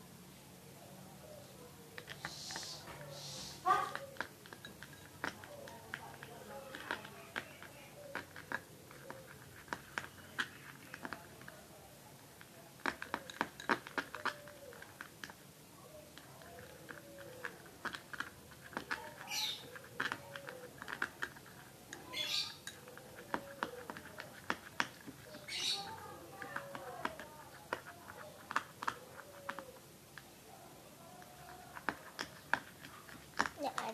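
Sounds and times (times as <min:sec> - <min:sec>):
light clicks and taps: 0:16.1 - 0:30.3.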